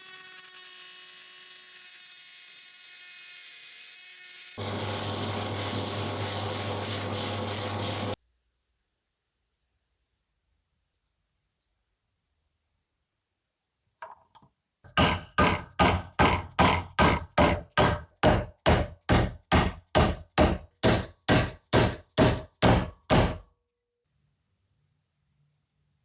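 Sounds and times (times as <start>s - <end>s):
hammer striking metal: 14.9s - 23.4s.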